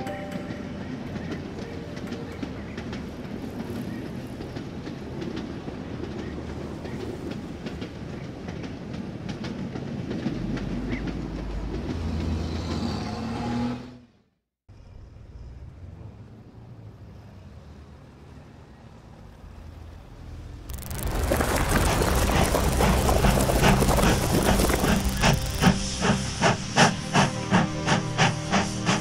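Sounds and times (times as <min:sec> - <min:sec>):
wheels clicking over rail joints: 0:00.0 - 0:12.9, 0:20.7 - 0:27.3
train rumbling on track: 0:00.0 - 0:14.1, 0:14.8 - 0:29.0.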